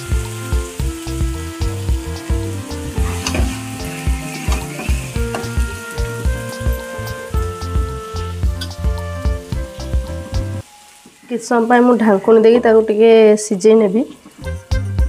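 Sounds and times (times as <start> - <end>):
background music with steady beat: 0.0 - 11.3, 14.4 - 15.0
curry sizzling in a pan: 0.0 - 14.9.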